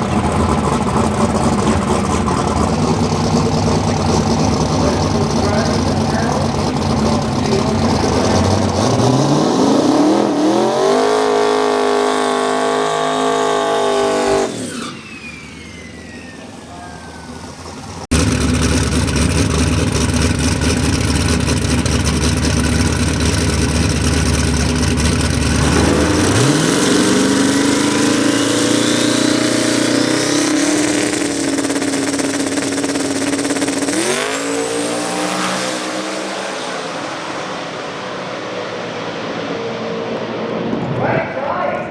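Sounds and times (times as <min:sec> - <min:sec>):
race car engines accelerating: 0:00.0 - 0:41.9.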